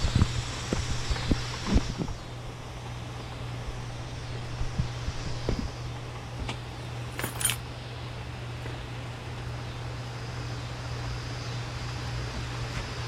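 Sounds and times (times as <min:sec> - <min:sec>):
light metallic clinks: 0:07.1 - 0:07.6.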